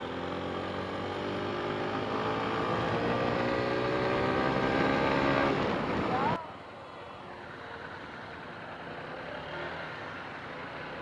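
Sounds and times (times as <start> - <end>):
motorcycle engine accelerating: 0.0 - 6.4.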